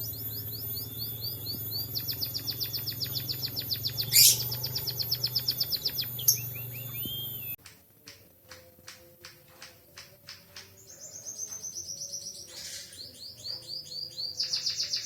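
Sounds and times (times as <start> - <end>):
bird singing high trills: 0.0 - 7.6, 10.7 - 15.0
steady low hum: 0.0 - 7.6.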